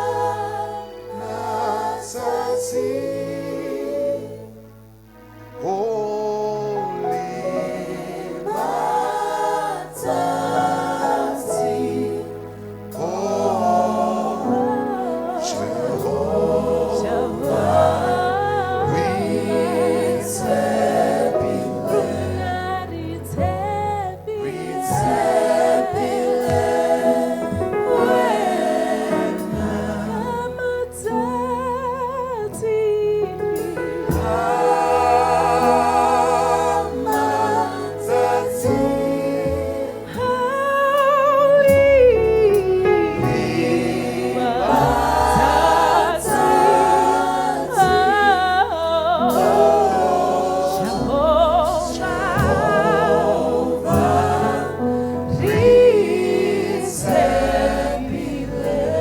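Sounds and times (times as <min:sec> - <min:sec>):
low accompanying notes: 0:00.0 - 0:59.0
voices singing slow song: 0:00.0 - 0:59.0.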